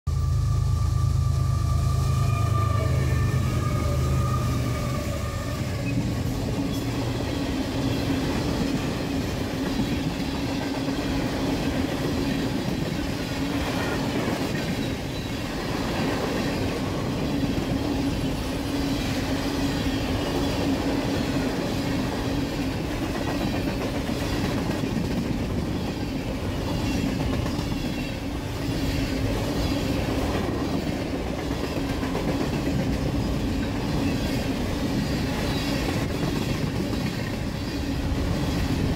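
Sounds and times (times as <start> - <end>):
low hum: 0.1 - 4.1
train wheels rumbling on track: 0.1 - 38.9.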